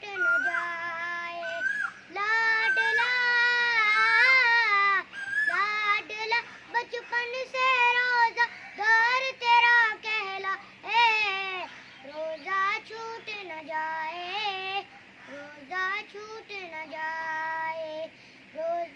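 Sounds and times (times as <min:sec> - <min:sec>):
high-pitched voice singing: 0:00.0 - 0:10.1.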